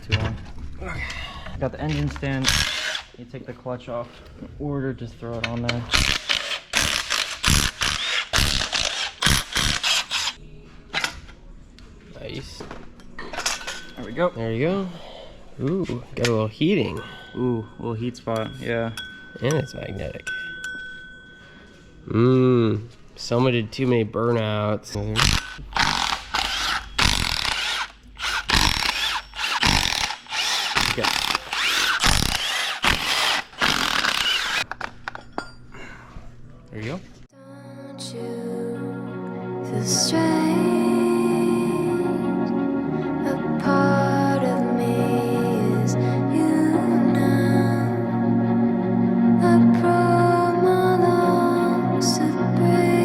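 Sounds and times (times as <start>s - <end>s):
tool rattling bursts: 2.3s - 3.2s, 5.9s - 10.4s, 25.2s - 34.7s.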